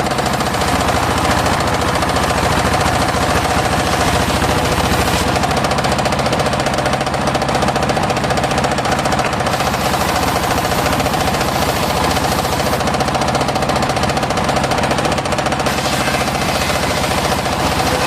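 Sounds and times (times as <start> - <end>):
engine-driven sawmill sawing wood: 0.0 - 18.0.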